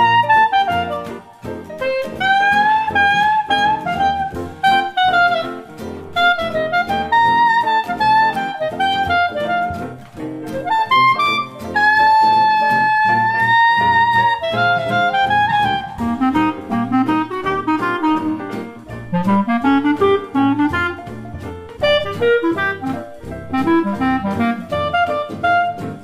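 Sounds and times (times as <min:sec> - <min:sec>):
melody with bass accompaniment: 0:09.7 - 0:26.0.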